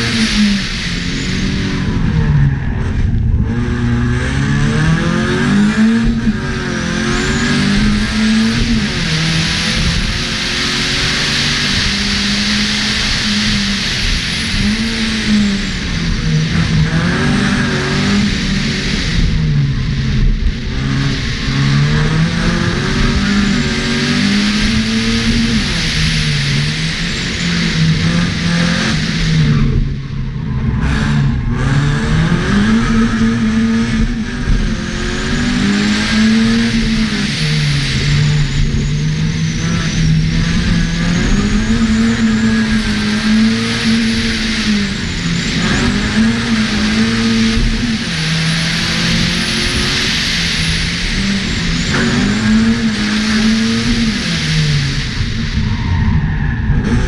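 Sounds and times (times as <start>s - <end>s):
car engine revving hard: 0.0s - 57.0s
road and wind noise: 0.0s - 57.0s.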